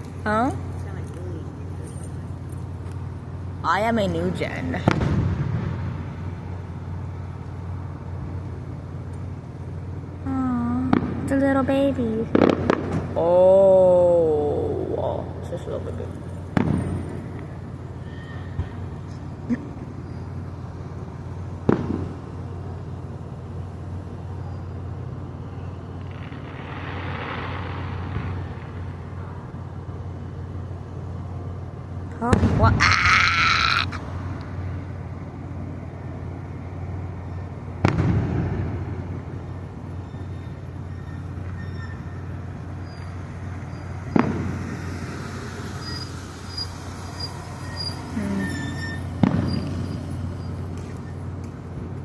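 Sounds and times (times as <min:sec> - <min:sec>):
low outdoor rumble: 0:00.0 - 0:52.0
steady low hum: 0:00.0 - 0:52.0
firework bang: 0:04.1 - 0:06.5, 0:10.8 - 0:13.2, 0:16.3 - 0:20.2, 0:21.6 - 0:22.3, 0:26.0 - 0:29.2, 0:32.3 - 0:33.0, 0:37.8 - 0:39.4, 0:42.8 - 0:51.9
small firework pop: 0:21.7 - 0:22.1.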